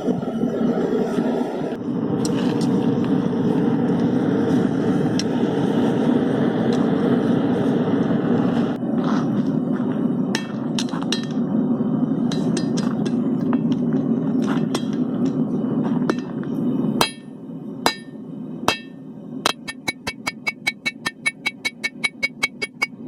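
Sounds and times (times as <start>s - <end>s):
steady low rush: 0.0s - 23.0s
hammer ringing on anvil: 17.0s - 23.0s.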